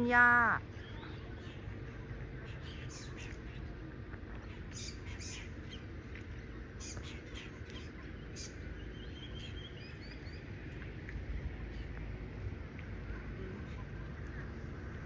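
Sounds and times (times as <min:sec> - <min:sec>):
low outdoor rumble: 0:00.0 - 0:15.0
birds chirping: 0:04.4 - 0:05.9, 0:06.8 - 0:10.5.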